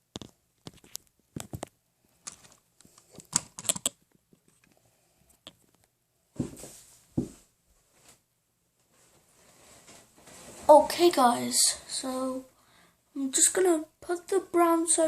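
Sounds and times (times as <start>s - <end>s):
plastic bricks clicking: 0.1s - 4.7s.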